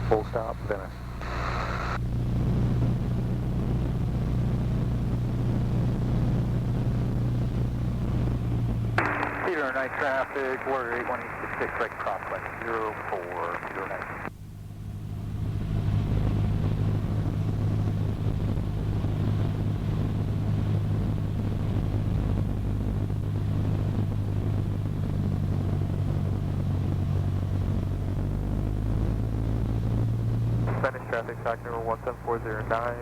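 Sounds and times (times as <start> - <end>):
radio call: 0.0 - 2.0, 9.0 - 14.3, 30.6 - 33.0
aircraft engine and propeller droning: 7.5 - 33.0.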